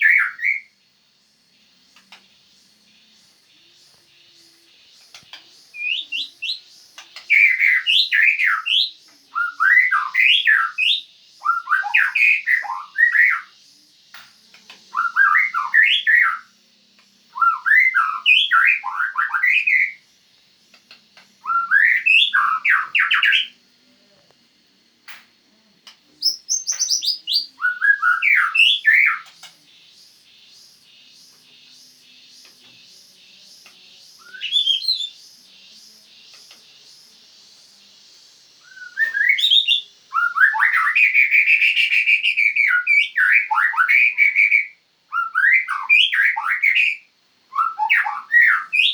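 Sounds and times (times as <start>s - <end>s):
songbird whistling phrases: 0.0s - 0.7s, 3.9s - 16.5s, 17.3s - 20.0s, 21.4s - 23.6s, 26.1s - 29.9s, 33.4s - 36.5s, 38.6s - 48.9s.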